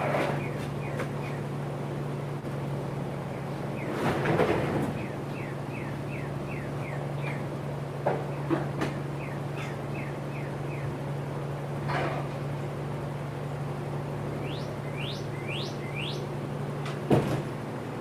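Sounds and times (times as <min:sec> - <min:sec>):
steady low hum: 0:00.0 - 0:18.0
small birds chirping: 0:00.3 - 0:01.5, 0:03.1 - 0:11.3, 0:14.3 - 0:16.4.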